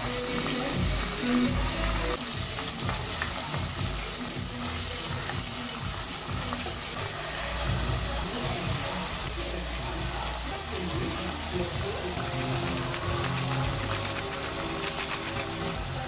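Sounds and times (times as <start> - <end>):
onions and peppers sizzling in oil: 0.0 - 16.0
spatula stirring in pot: 10.9 - 16.0.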